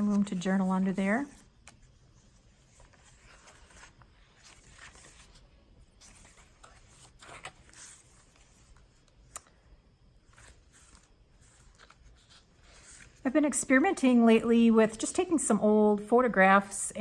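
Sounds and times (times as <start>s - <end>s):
paper pages rustling: 0.0s - 13.3s.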